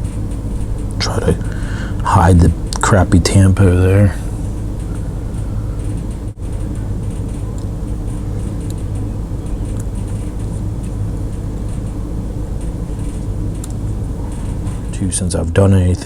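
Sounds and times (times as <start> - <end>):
low rumble: 0.0 - 15.6
faint ticks: 4.2 - 15.1.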